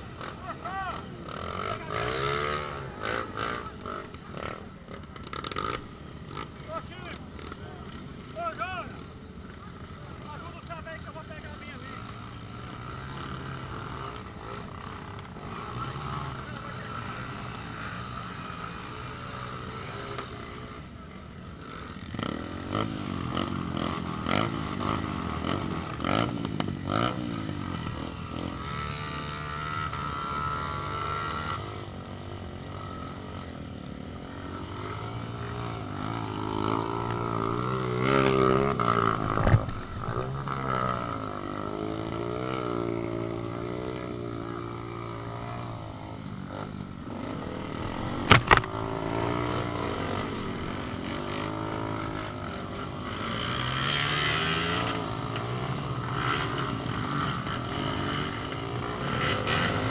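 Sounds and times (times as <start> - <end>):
vehicle engine revving: 32.6 - 59.9.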